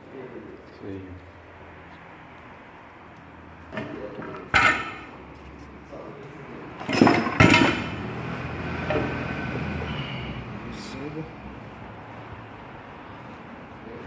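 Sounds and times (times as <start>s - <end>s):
metal tools clanking: 3.7s - 5.2s, 6.8s - 8.0s.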